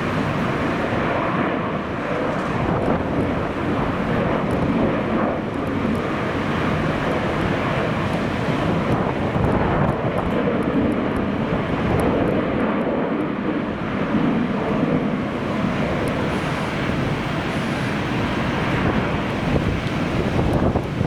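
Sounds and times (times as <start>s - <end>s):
jet engines roaring: 0.0s - 21.0s
wind buffeting microphone: 0.0s - 21.0s.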